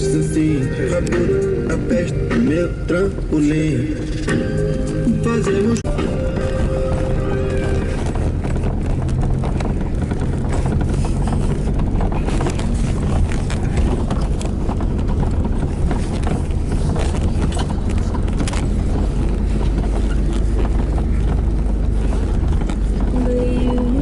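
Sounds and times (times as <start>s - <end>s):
car and motorcycle engines rumbling: 0.0s - 24.0s
irregular clicks and clatter: 5.8s - 24.0s.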